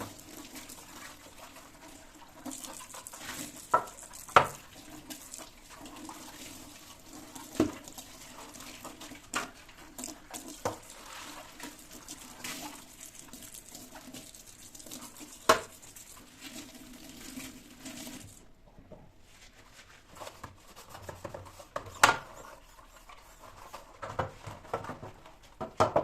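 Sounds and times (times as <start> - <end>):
tap water running into sink: 0.0 - 18.4.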